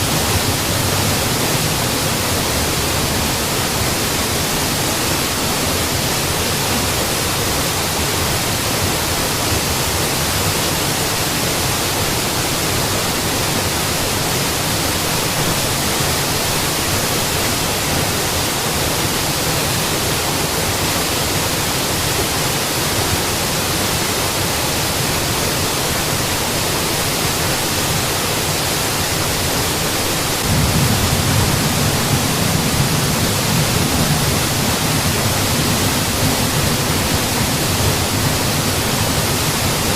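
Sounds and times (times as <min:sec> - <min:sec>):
waterfall rushing: 0:00.0 - 0:39.9
deep rumble: 0:30.4 - 0:39.9.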